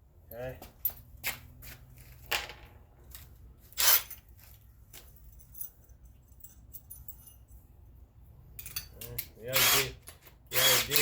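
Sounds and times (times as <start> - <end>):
small metal hardware clinking: 2.3 - 7.9, 8.5 - 9.4.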